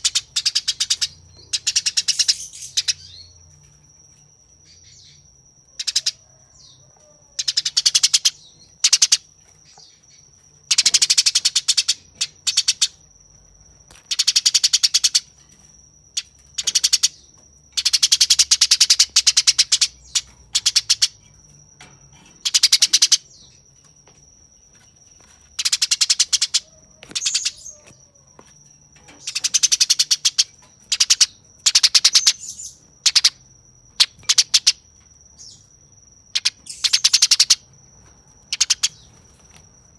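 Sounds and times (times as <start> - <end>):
sparrow chattering calls: 0.0 - 3.3, 5.8 - 6.2, 7.4 - 9.9, 10.7 - 13.0, 14.1 - 15.3, 16.2 - 17.2, 17.8 - 21.2, 22.4 - 23.6, 25.6 - 27.9, 29.2 - 33.4, 34.0 - 34.8, 36.3 - 37.7, 38.5 - 39.2.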